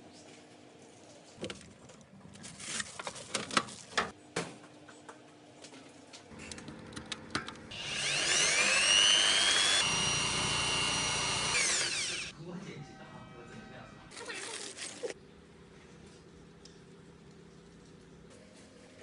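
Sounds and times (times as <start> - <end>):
small electric motor whining: 7.7 - 12.3.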